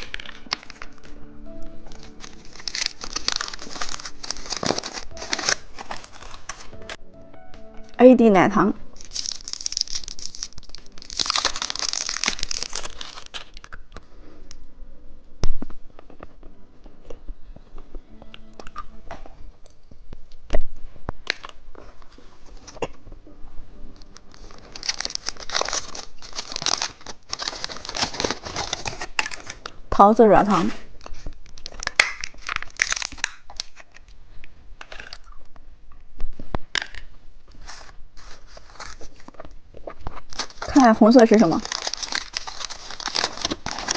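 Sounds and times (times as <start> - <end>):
plastic wrapper crinkling and tearing: 0.0 - 7.0, 8.8 - 14.7, 19.7 - 22.9, 24.0 - 29.8, 30.5 - 35.6, 36.3 - 43.9.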